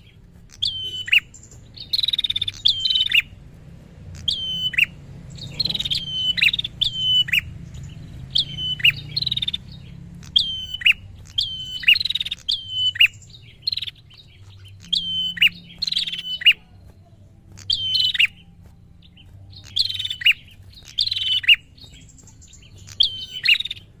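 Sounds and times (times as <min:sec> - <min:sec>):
bird calling sharp phrases: 0:00.0 - 0:24.0.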